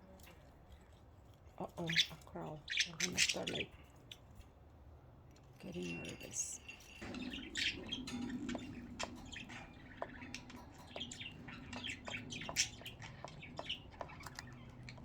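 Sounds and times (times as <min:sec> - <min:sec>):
budgerigars chattering and chirping: 0:01.6 - 0:04.2, 0:05.6 - 0:15.0.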